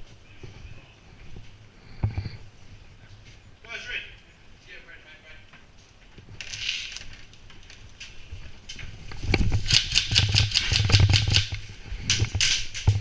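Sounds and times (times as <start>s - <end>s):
electric rifle firing bursts: 9.6s - 11.6s.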